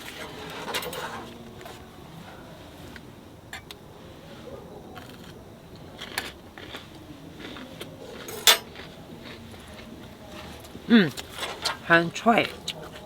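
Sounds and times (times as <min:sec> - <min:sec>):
low steady background noise: 0:00.0 - 0:13.0
eating crunches: 0:04.9 - 0:11.8.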